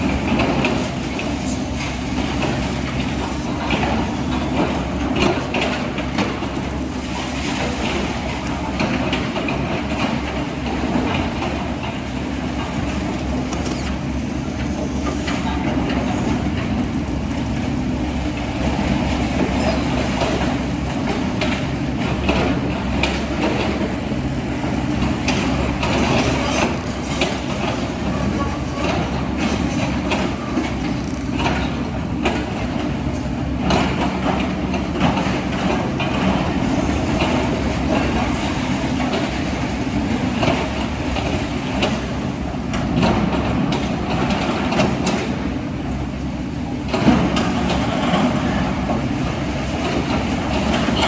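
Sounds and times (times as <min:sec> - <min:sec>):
electric motor and gear hum: 0:00.0 - 0:51.0
small clicks and clatter: 0:00.2 - 0:18.7, 0:25.2 - 0:32.6.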